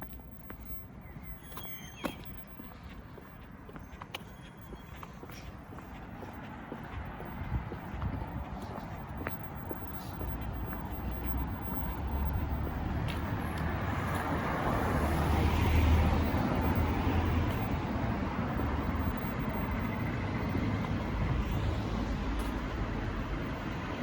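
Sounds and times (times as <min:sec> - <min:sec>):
vehicle passing: 0:05.3 - 0:24.0.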